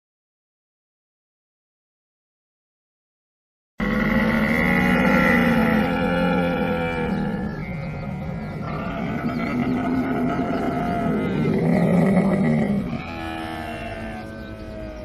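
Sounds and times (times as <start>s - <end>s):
camel calling: 3.8s - 15.0s.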